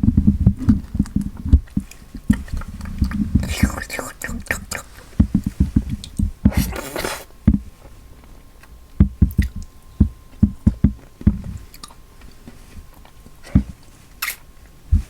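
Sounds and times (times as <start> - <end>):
wet squishy chewing: 0.5 - 7.3, 8.5 - 14.5
breathy hiss: 2.0 - 7.4.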